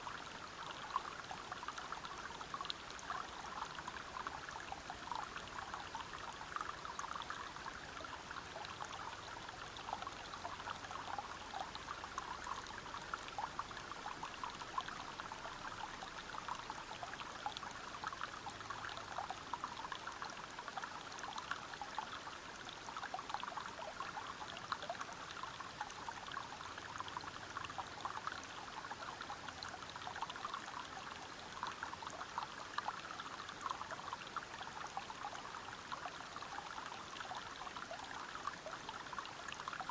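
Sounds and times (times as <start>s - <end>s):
stream splashing over rocks: 22.8s - 39.9s.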